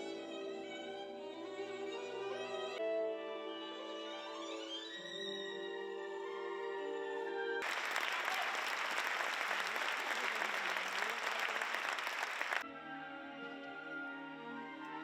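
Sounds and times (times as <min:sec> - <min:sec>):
violin-led string music: 0:00.0 - 0:07.6, 0:12.6 - 0:15.0
audience applauding: 0:07.6 - 0:12.6.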